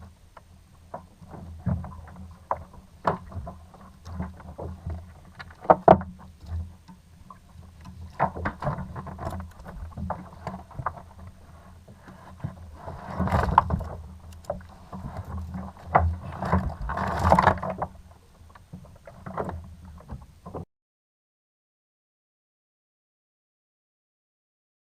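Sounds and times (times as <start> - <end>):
knocks and clicks on kayak: 7.8 - 11.3.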